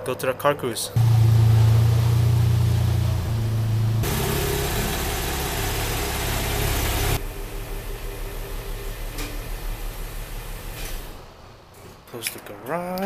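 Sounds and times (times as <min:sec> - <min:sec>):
car engine at low revs: 0:01.0 - 0:11.2.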